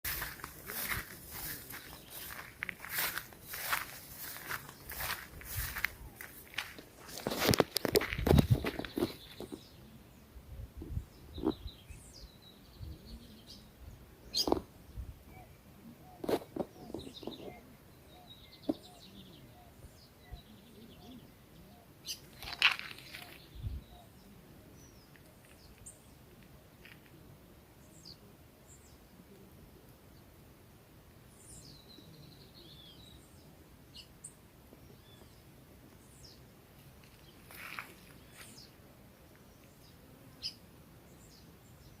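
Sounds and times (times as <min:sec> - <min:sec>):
faint outdoor background noise: 0:00.0 - 0:42.0
birds chirping and calling: 0:00.1 - 0:26.2.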